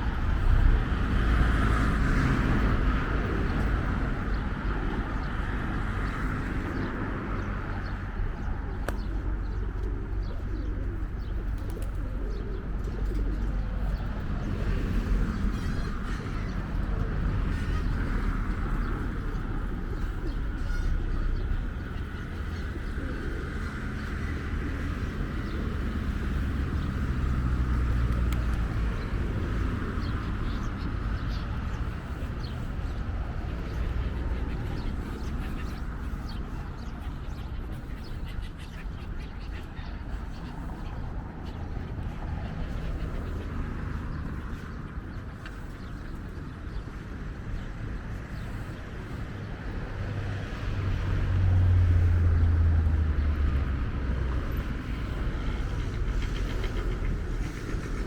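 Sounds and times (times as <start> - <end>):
engine rumbling: 39.5 - 58.0.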